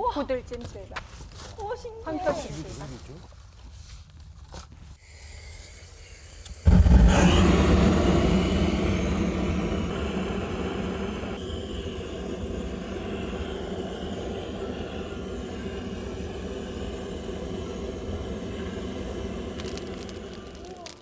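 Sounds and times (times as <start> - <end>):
wood fire burning: 5.0 - 21.0.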